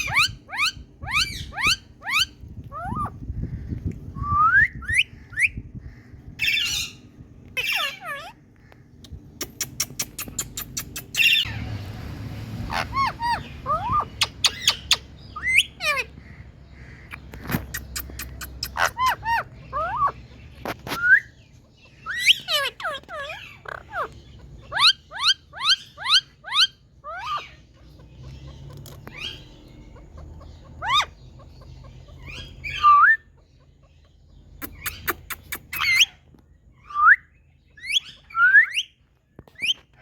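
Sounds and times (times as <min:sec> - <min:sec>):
parrot squawking: 0:00.0 - 0:03.2, 0:07.6 - 0:08.4, 0:09.4 - 0:11.6, 0:12.5 - 0:21.3, 0:21.9 - 0:36.2, 0:36.8 - 0:39.0.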